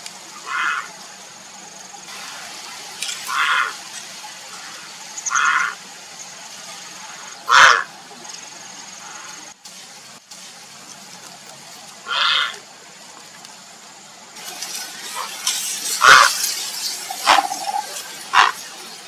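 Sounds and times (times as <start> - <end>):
heron calling harshly: 0.4 - 1.0, 3.3 - 3.8, 4.5 - 5.8, 7.1 - 7.9, 12.0 - 12.6, 16.0 - 16.4, 17.1 - 18.6.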